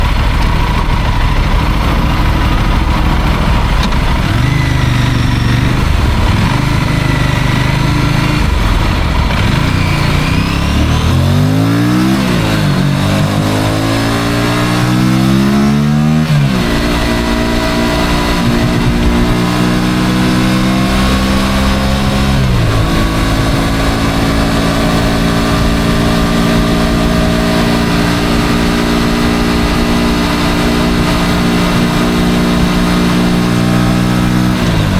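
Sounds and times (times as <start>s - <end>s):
motorcycle engine revving: 0.0s - 34.9s
steady rushing noise: 0.0s - 34.9s.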